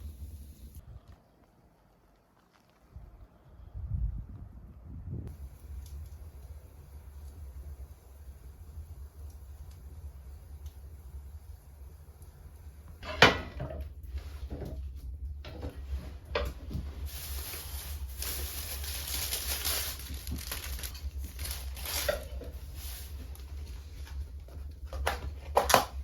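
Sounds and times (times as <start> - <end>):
steady hiss: 0.0 - 0.8, 5.3 - 25.8
low rumble: 3.0 - 12.9
knocks and clatter of handling: 13.0 - 17.2.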